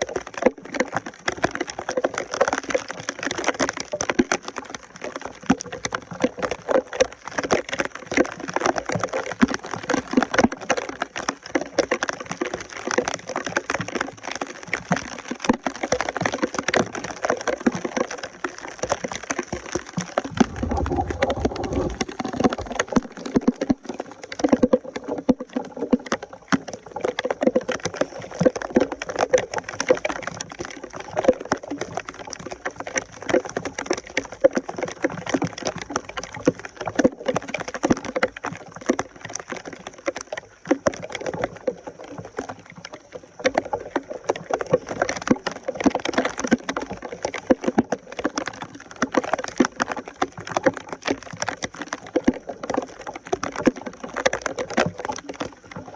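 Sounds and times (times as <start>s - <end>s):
water sloshing and splashing: 15.5s - 33.1s, 38.1s - 55.9s.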